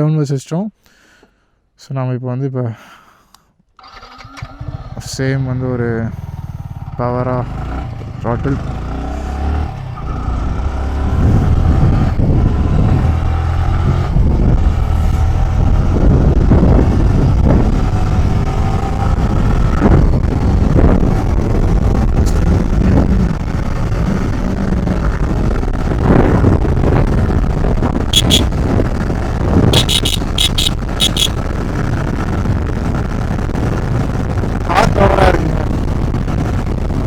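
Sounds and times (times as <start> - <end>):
motorcycle engine accelerating: 6.1 - 25.4, 28.1 - 28.5, 29.2 - 31.4
wind rumble on microphone: 10.6 - 37.0.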